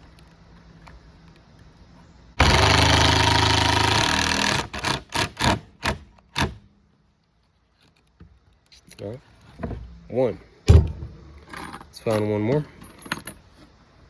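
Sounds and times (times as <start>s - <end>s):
power drill driving a screw: 2.4s - 6.0s.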